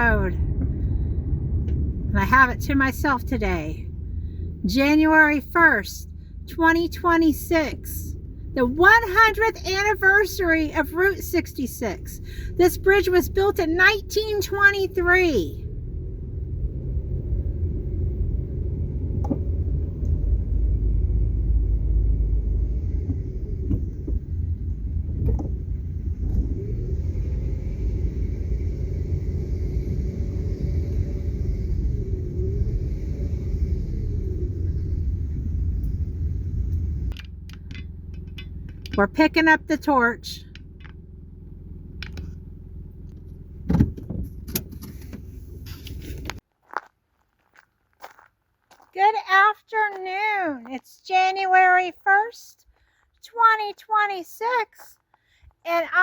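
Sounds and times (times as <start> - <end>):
car road rumble: 0.0 - 56.0
heavy thump: 43.6 - 45.2.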